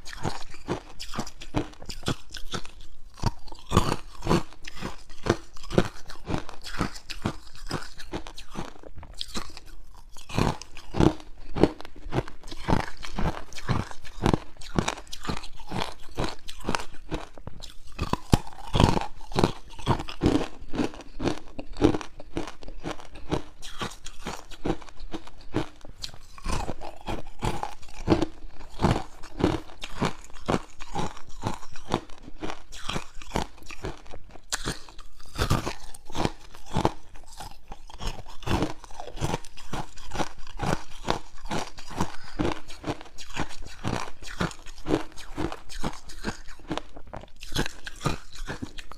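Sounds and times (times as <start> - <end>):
ice cubes crunching: 0.1 - 48.9.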